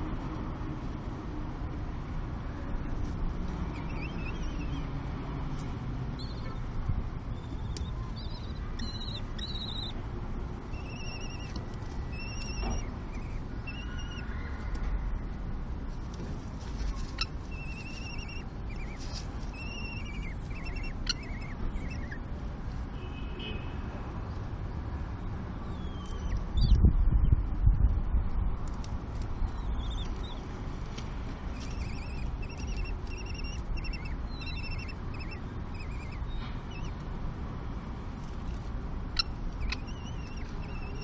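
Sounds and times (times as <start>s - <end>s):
steady low rumble: 0.0s - 22.9s, 24.0s - 41.0s
high wavering bird calls: 3.7s - 4.9s, 6.1s - 10.0s, 10.6s - 14.8s, 16.8s - 22.3s, 25.6s - 26.8s, 29.4s - 30.5s, 31.5s - 37.1s, 39.1s - 41.0s.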